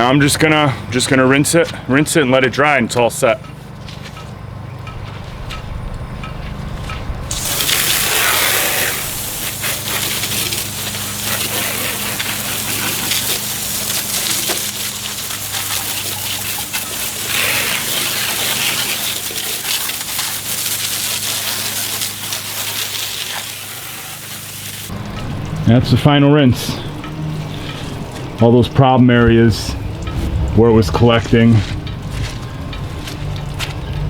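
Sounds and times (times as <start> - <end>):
water spraying onto hull: 7.2 - 34.0
low hum: 24.9 - 34.0.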